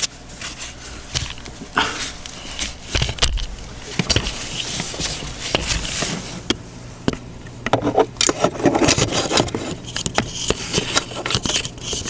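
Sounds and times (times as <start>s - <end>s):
rustling: 0.0s - 6.5s.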